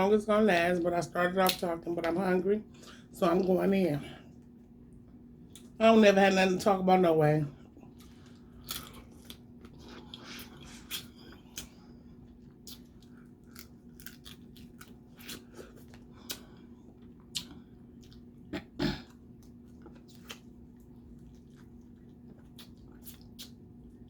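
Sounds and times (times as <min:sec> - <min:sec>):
chewing and biting: 0:07.6 - 0:18.5, 0:19.1 - 0:24.0.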